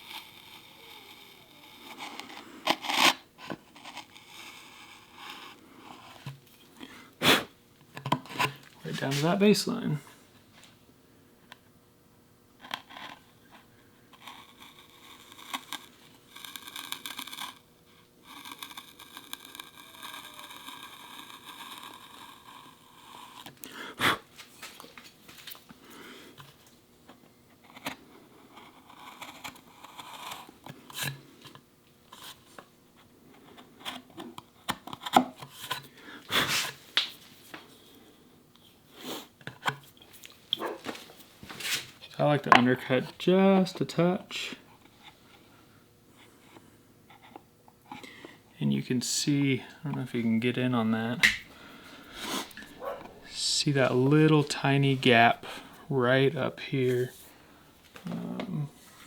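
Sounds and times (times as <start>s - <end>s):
saw scraping wood: 14.1s - 24.2s, 49.3s - 57.4s.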